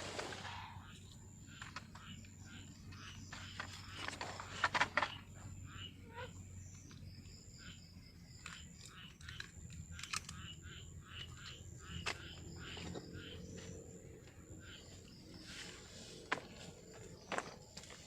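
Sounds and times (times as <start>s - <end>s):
frogs chirping: 0.0s - 18.0s
clicks and knocks of gear: 8.3s - 10.6s.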